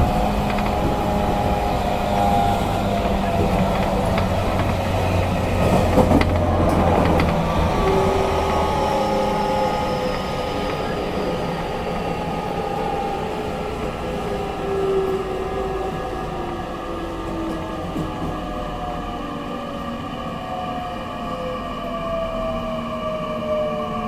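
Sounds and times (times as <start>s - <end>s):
train motor tones falling: 0.0s - 12.9s
train running noise: 0.0s - 24.0s
clicks: 3.0s - 11.0s.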